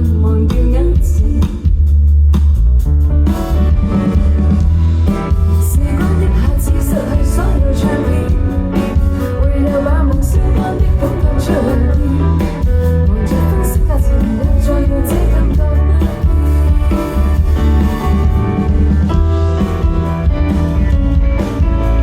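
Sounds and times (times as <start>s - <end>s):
live pop band playing: 0.0s - 22.0s
person singing: 5.6s - 17.5s.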